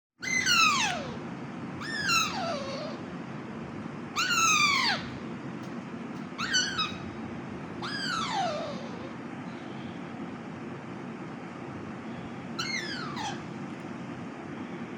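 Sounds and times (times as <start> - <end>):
young parrot whining calls: 0.2 - 3.1, 4.1 - 5.2, 6.3 - 7.2, 7.8 - 10.0, 12.1 - 13.6
steady low hum: 0.2 - 14.9.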